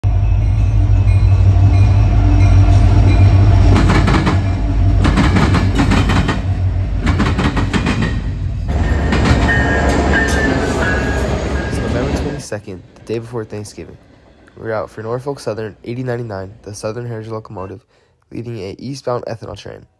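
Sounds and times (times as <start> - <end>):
freight train rumbling: 0.0 - 17.5
train wheels clicking on rail joints: 3.1 - 16.5.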